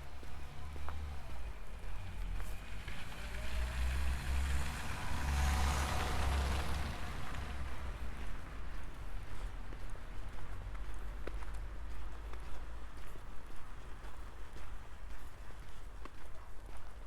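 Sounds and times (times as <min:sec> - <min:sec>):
road vehicle passing by: 0:00.0 - 0:11.8.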